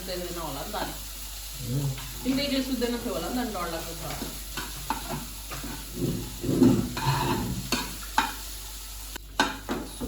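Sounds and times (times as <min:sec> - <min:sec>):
food sizzling in a pan: 0:00.0 - 0:10.0.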